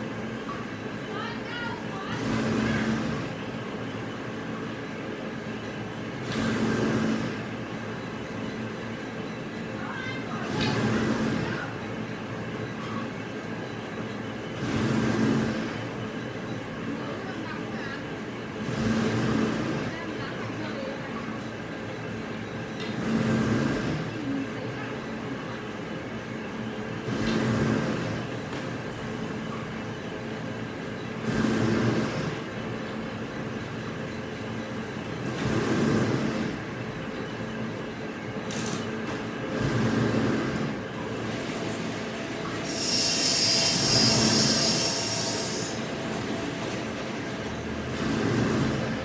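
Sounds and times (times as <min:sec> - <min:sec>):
industrial machinery humming: 0:00.0 - 0:49.0
machine hiss: 0:39.5 - 0:49.0
mechanical surge: 0:42.6 - 0:49.0.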